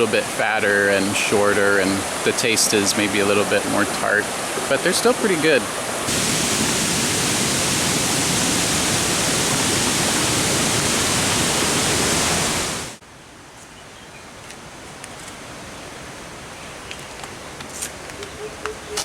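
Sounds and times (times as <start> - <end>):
faint hiss: 0.0 - 13.0
running water rushing: 0.0 - 13.0.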